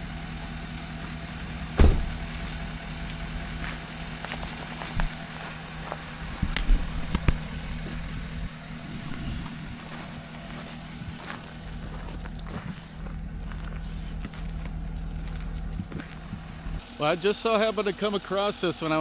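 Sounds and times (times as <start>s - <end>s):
diesel truck engine humming: 0.0s - 19.0s
loud sharp clunk: 1.8s - 2.3s
knocks and rattles: 1.8s - 2.6s.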